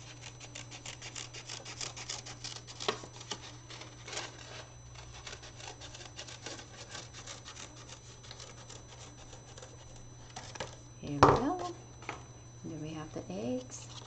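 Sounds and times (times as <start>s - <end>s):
scissors snipping paper: 0.0s - 10.7s.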